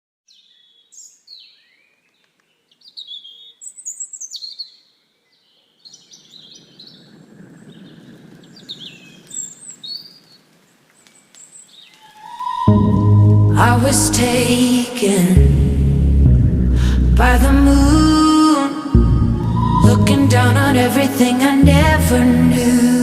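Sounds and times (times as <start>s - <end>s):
birds chirping and singing: 0.3s - 13.0s
low steady rushing noise: 12.5s - 18.3s, 18.9s - 23.0s.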